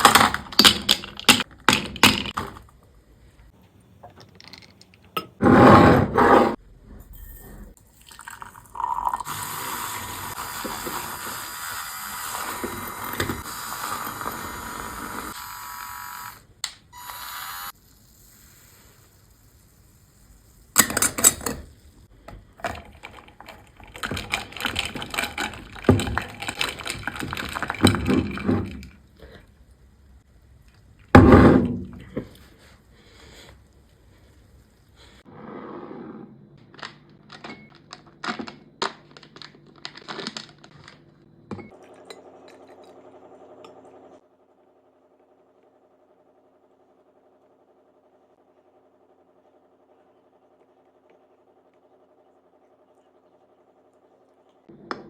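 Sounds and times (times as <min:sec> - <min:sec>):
liquid pouring: 0:07.8 - 0:11.2.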